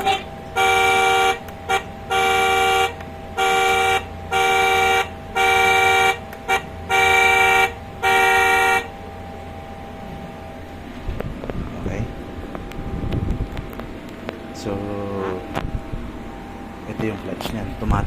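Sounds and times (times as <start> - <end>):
toy car electronic horn beeps: 0.0 - 8.9.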